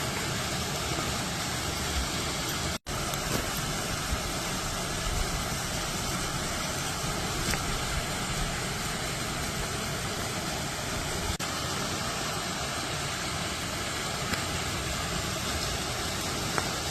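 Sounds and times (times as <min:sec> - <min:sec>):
waterfall rushing: 0:00.0 - 0:16.9.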